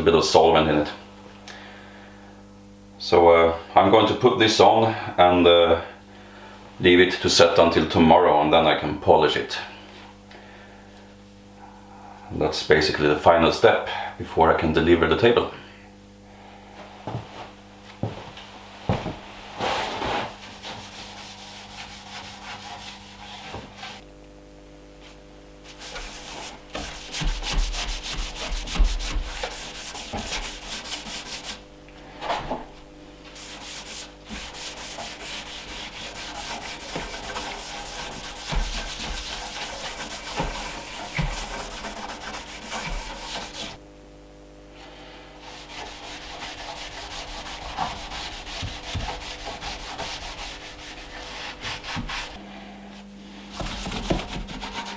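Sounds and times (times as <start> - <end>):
scratchy hand rubbing on wood: 19.6 - 24.0, 25.7 - 31.6, 33.3 - 43.8, 45.4 - 52.4, 53.5 - 54.9.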